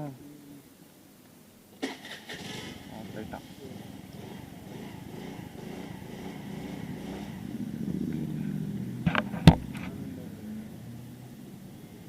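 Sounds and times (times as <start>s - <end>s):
vehicle engine hum: 1.8s - 12.0s
sharp knocks: 9.1s - 9.9s.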